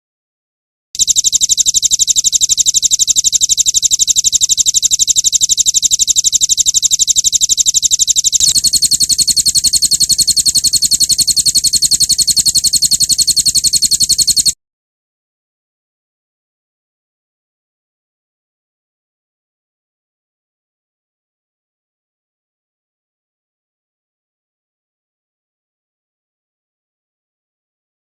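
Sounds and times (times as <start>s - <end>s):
rapid pulsed bird trill: 1.0s - 14.6s.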